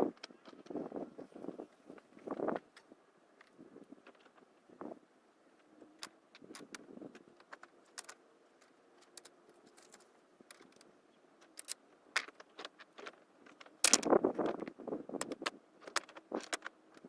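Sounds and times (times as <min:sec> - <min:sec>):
small clicks and knocks: 0:05.6 - 0:17.0.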